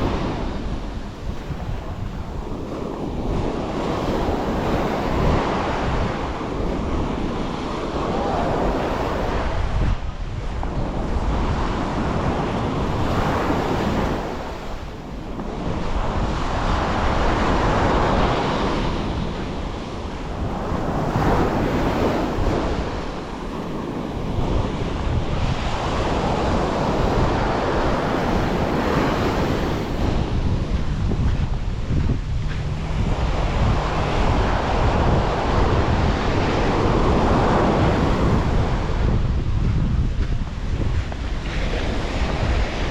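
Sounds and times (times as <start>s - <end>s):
waves breaking on a beach: 0.0s - 42.9s
wind buffeting the microphone: 0.0s - 42.9s.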